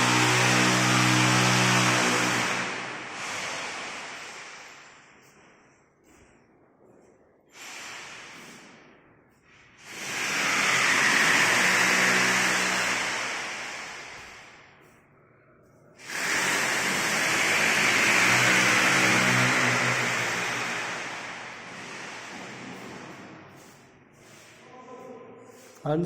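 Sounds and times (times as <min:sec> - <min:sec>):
power tool cutting wood: 0:00.0 - 0:04.2, 0:09.8 - 0:14.2, 0:16.0 - 0:22.6.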